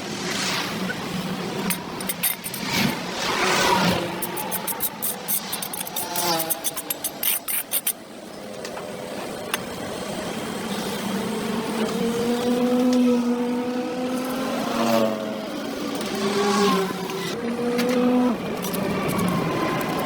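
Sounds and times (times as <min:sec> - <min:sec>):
scraping and clicking strokes: 0:01.6 - 0:08.0, 0:18.6 - 0:20.0.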